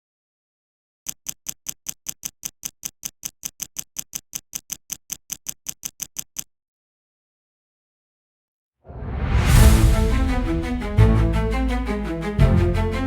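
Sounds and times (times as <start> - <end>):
rapid sharp ticks: 1.1 - 6.5.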